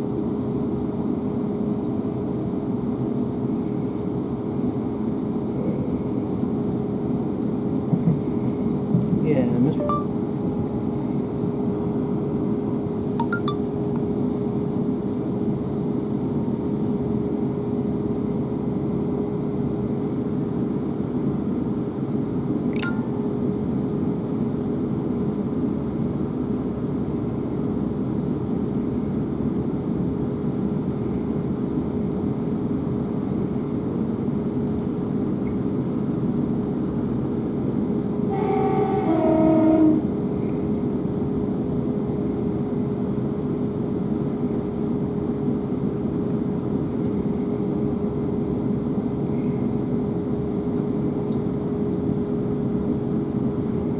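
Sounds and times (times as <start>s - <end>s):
electric train rumbling at speed: 0.0s - 53.9s
two-tone train horn: 38.2s - 40.2s.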